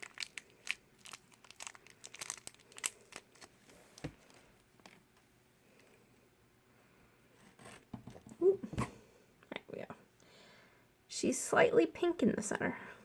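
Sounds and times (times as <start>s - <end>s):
plastic wrapper crinkling and tearing: 0.0s - 5.2s.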